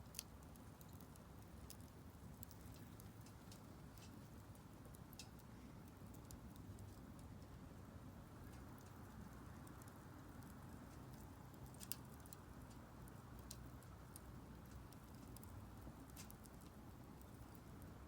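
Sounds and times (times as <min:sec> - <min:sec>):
firewood crackling: 0:00.0 - 0:18.0
fire popping: 0:08.2 - 0:18.0.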